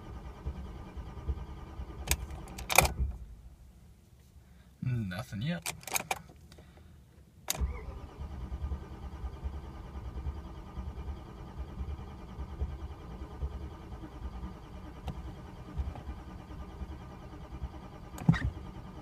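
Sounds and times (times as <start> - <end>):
starter motor cranking engine: 0.0 - 3.1, 7.5 - 19.0
ignition key click: 2.0 - 3.0, 5.6 - 6.3, 7.5 - 7.9.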